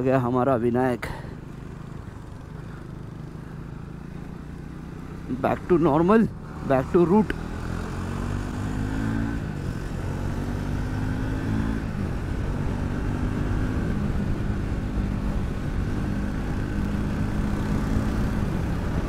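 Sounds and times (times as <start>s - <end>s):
road rumble: 0.0s - 19.0s
motorcycle engine accelerating: 1.4s - 19.0s
heavy wind: 7.4s - 19.0s.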